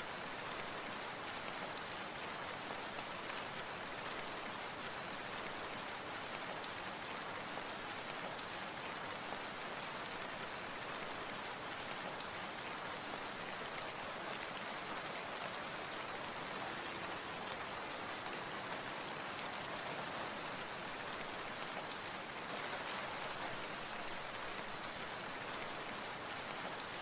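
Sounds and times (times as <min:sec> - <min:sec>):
steady rain hiss: 0:00.0 - 0:27.0
faint raindrop ticks: 0:00.1 - 0:19.8.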